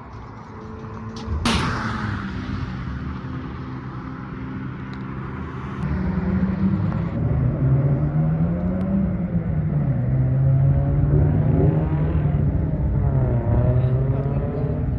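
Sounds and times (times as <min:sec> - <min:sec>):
sudden loud burst of noise: 0:00.0 - 0:06.1.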